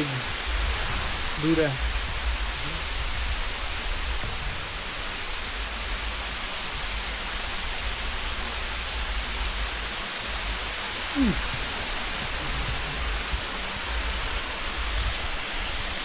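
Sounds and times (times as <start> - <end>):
waterfall rushing: 0.0 - 16.0
low rumble: 0.3 - 15.9
short falling voice: 11.2 - 11.5.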